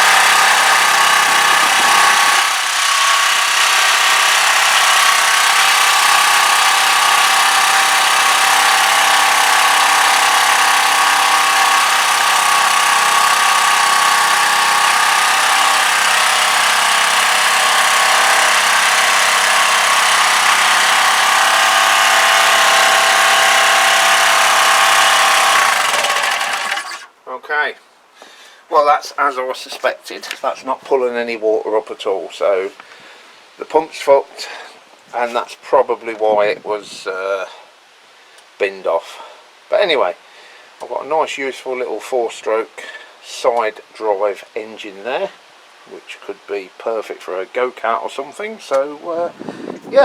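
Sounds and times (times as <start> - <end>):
small engine running: 0.0 - 27.1.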